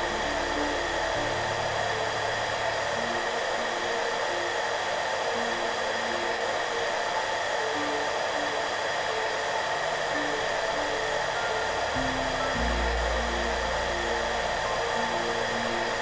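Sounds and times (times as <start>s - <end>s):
hair dryer running: 0.0s - 16.0s
soft background music: 0.0s - 16.0s.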